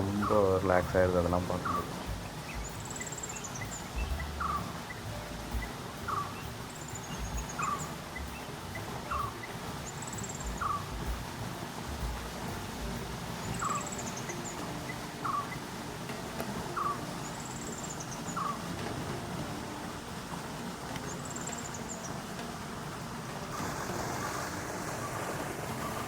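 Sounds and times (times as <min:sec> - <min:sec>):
low steady rumble: 0:00.0 - 0:21.3
bird high trilled call: 0:01.5 - 0:11.2, 0:13.3 - 0:15.8, 0:16.6 - 0:18.7.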